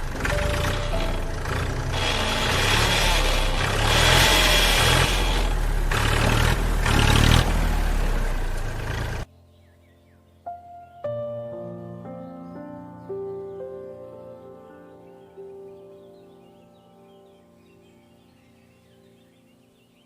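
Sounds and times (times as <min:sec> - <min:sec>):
tractor engine revving: 0:00.0 - 0:09.3.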